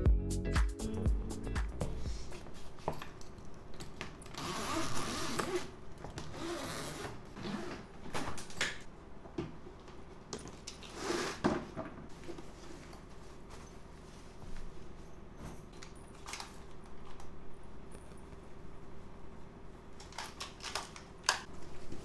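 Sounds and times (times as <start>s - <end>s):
rustling and scraping: 10.6s - 17.2s.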